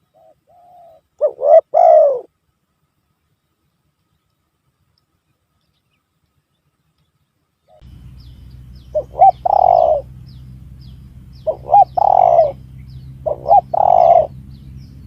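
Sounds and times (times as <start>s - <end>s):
dove cooing: 0.0s - 2.3s, 7.7s - 15.0s
low steady hum: 0.0s - 15.0s.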